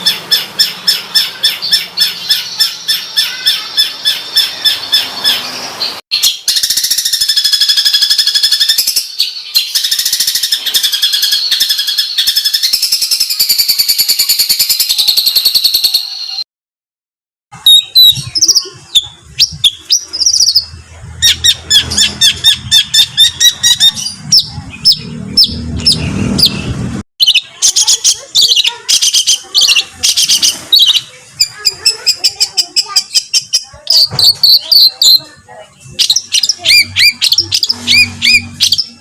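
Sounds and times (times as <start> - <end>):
songbird harsh repeated high notes: 0.0 - 16.4, 17.6 - 35.3, 35.9 - 39.0
low rumble: 19.2 - 27.0.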